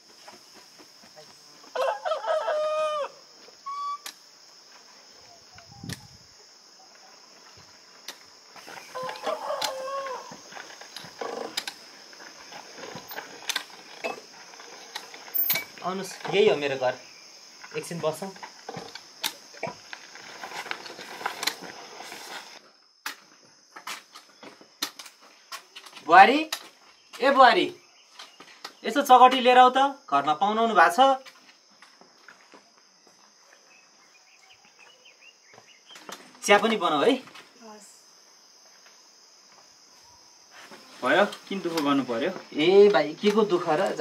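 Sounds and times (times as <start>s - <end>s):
high insect buzz: 0.0s - 29.1s, 30.5s - 44.0s
rooster crowing: 1.6s - 3.4s, 8.8s - 10.5s
crutch tips clicking on dirt: 8.0s - 16.4s, 17.6s - 21.9s, 23.0s - 26.7s
footsteps shuffling: 38.6s - 44.0s.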